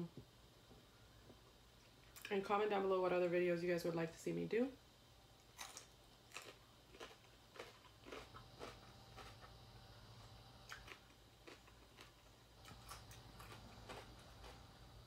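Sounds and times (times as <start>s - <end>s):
chewing cucumber crunching: 5.4s - 9.6s, 10.2s - 14.7s.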